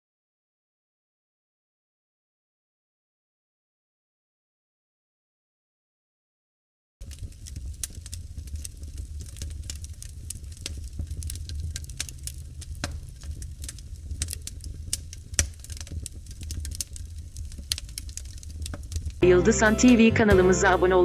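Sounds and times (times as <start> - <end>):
low rumble of flames: 7.0 - 19.8
wood fire crackling and popping: 7.0 - 20.7.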